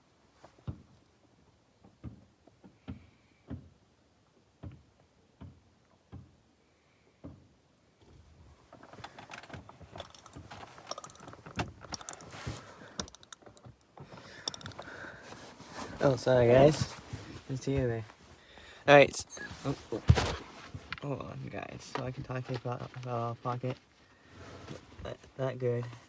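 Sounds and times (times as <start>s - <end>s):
soft knocks and taps: 0.5s - 1.0s
objects rustling and clattering: 8.0s - 21.1s.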